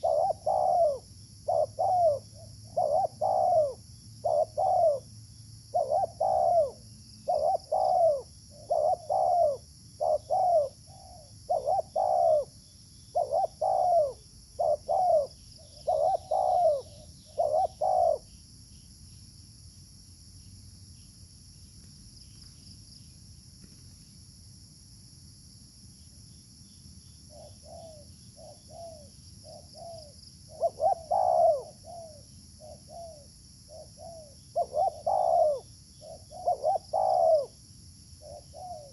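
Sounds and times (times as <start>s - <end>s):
dove cooing: 0.0s - 5.1s, 5.7s - 18.3s, 27.3s - 37.6s, 38.2s - 38.9s.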